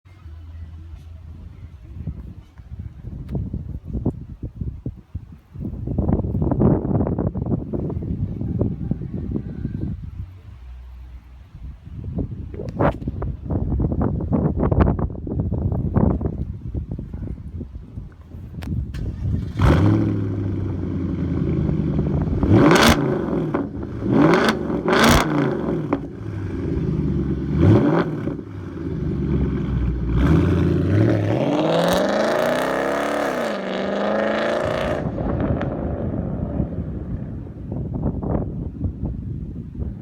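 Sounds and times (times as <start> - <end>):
car engine revving with exhaust cracks: 18.6 - 37.4
car accelerating: 19.0 - 37.6.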